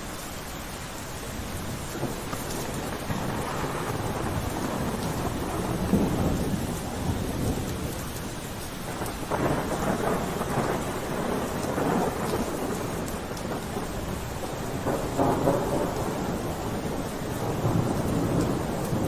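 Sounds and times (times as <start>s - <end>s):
rain falling: 0.0s - 19.0s
rolling thunder: 1.2s - 19.0s.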